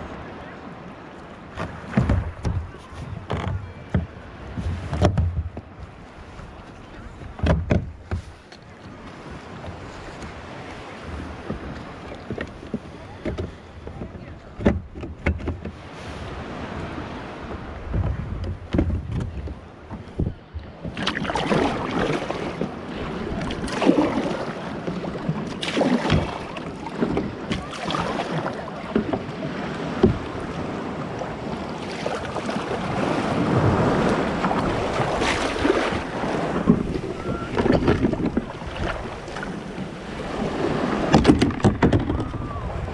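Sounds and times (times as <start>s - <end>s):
ocean waves and surf: 0.0s - 42.9s
knocks against kayak hull: 1.5s - 5.7s, 7.3s - 8.3s, 11.4s - 15.8s, 17.5s - 22.7s, 25.2s - 27.7s, 29.9s - 30.4s, 34.4s - 39.9s, 40.7s - 42.4s
wind buffeting microphone: 1.8s - 28.2s, 29.0s - 42.9s.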